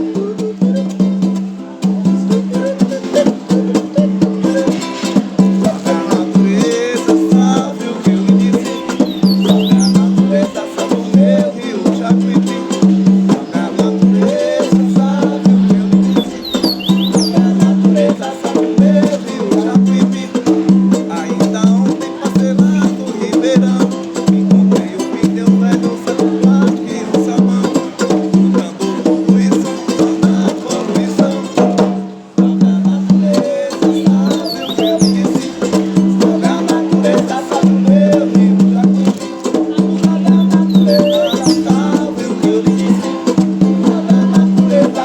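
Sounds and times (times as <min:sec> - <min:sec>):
berimbau wire notes: 0:08.6 - 0:10.1, 0:15.8 - 0:17.5, 0:40.2 - 0:41.8.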